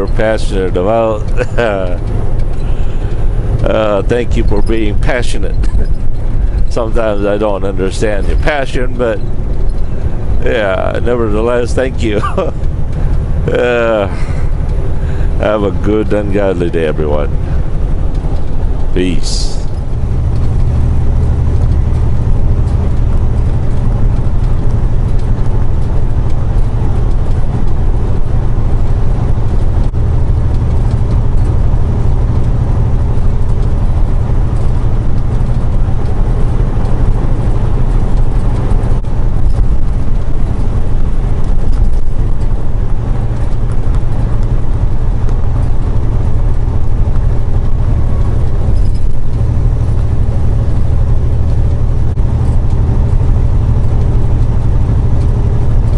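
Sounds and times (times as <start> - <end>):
truck engine and road drone: 0.0 - 55.9.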